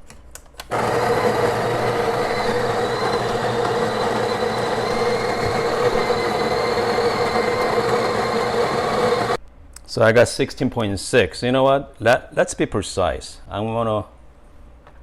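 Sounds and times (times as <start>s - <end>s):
coffee grinder motor whirring: 0.7s - 9.4s.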